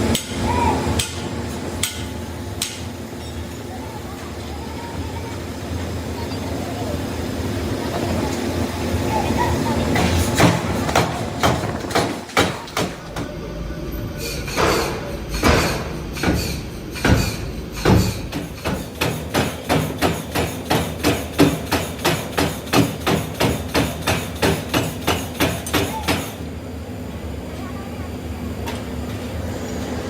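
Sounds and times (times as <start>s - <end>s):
hammer striking metal: 1.0s - 3.3s, 10.0s - 13.3s, 14.5s - 26.4s.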